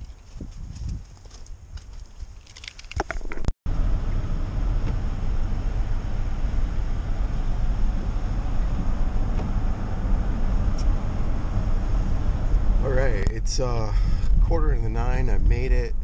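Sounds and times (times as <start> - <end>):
car interior road noise: 3.7 - 16.0.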